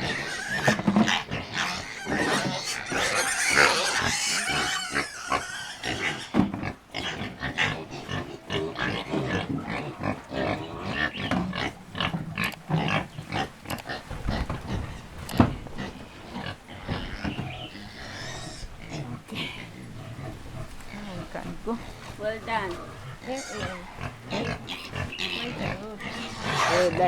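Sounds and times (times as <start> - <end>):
pigs grunting and squealing: 0.0 - 27.0.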